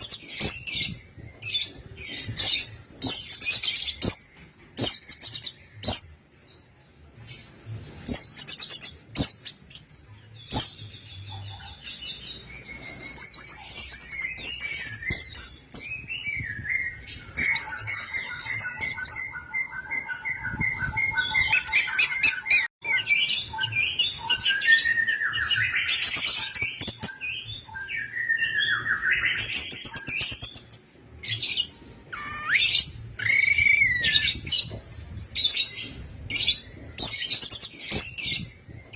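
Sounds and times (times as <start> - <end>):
thrush singing trills and whistles: 0.0 - 6.2, 8.1 - 38.9.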